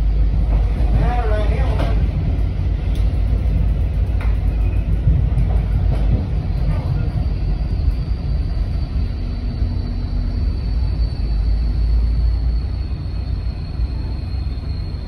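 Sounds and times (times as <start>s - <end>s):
train rumbling on track: 0.0s - 15.0s
faint clicks: 2.9s - 6.7s.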